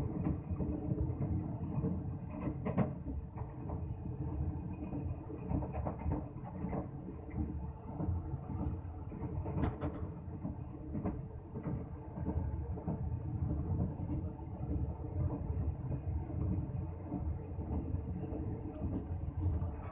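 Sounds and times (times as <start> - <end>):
train wheels rumbling on track: 0.0 - 19.9.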